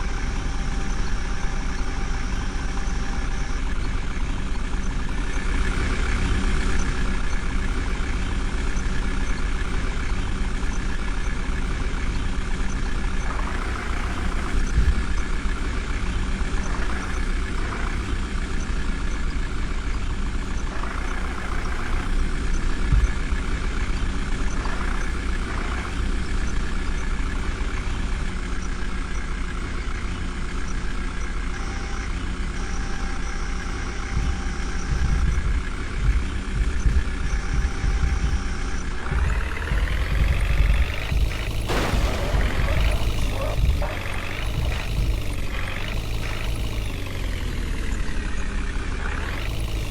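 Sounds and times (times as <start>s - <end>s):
backhoe diesel engine running: 0.0s - 49.9s.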